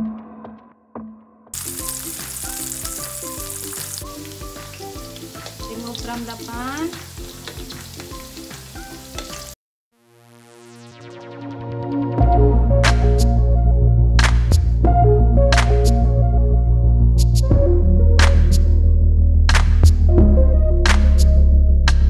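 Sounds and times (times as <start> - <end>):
food sizzling in a pan: 1.6 - 9.6.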